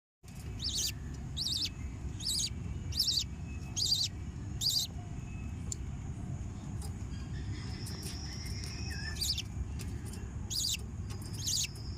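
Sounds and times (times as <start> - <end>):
steady low hum: 0.3 - 11.9
budgerigar chirping: 0.5 - 5.0, 7.2 - 9.5, 10.4 - 11.9.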